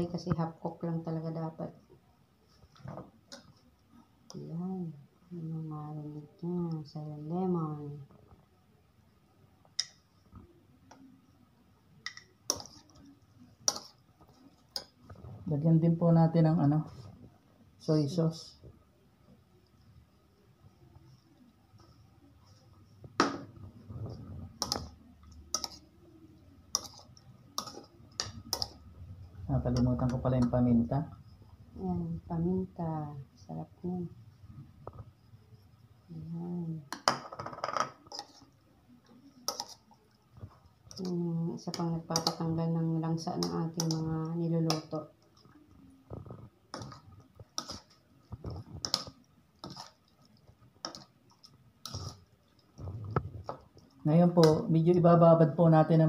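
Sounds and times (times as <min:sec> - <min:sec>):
metal spoon scraping plastic bowl: 0:51.8 - 0:52.3.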